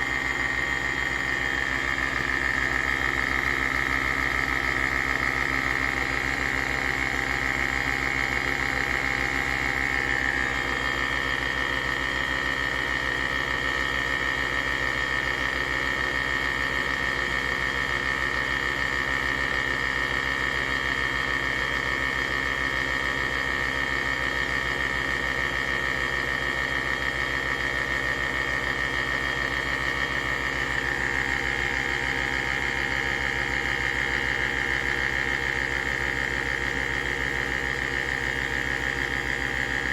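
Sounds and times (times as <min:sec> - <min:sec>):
high whine of spinning capsule: 0:00.0 - 0:16.3, 0:25.6 - 0:39.9
coffee machine pump hum: 0:00.0 - 0:39.9.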